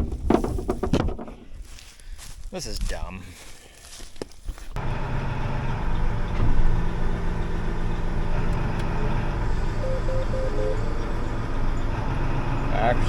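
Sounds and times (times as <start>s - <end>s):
truck engine running: 4.8s - 13.0s
beeping chime: 9.7s - 11.9s.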